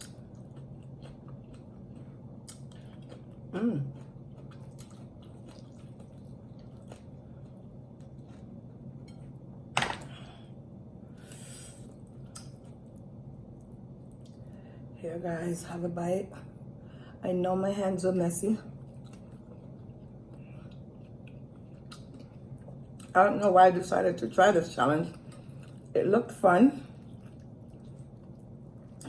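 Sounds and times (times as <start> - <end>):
person chewing food: 0.0 - 9.4, 18.8 - 23.1, 25.1 - 25.9, 26.9 - 29.0
steady low hum: 0.0 - 29.0.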